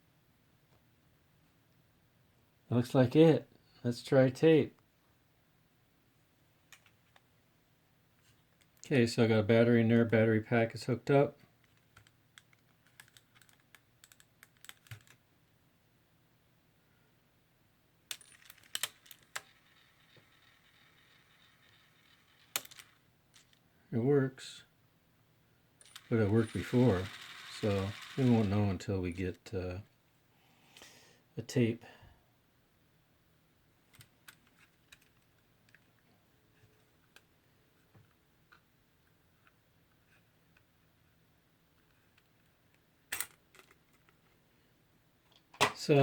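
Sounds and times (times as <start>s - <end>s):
small plastic objects clicking: 11.6s - 15.2s, 18.1s - 23.6s.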